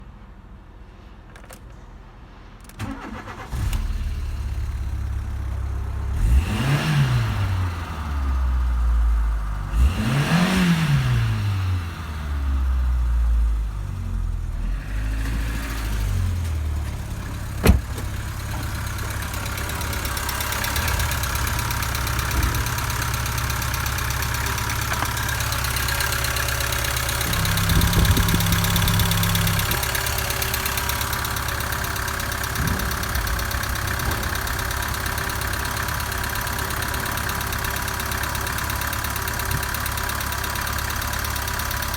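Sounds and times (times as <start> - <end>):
car engine starting and idling: 2.6 - 41.9
engine revving: 5.9 - 8.8, 9.4 - 13.0, 14.6 - 37.0.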